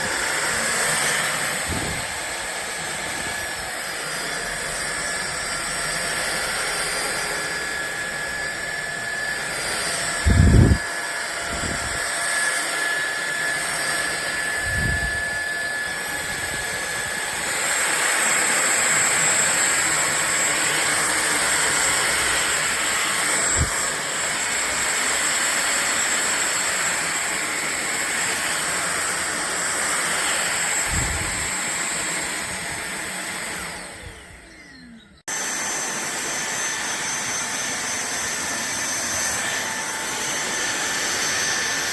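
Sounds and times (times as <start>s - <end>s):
stick vacuum cleaner running: 0.0s - 41.9s.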